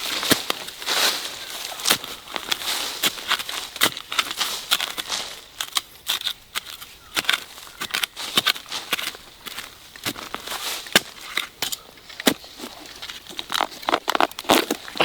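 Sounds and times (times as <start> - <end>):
dry leaves rustling and crackling: 0.0 - 11.4.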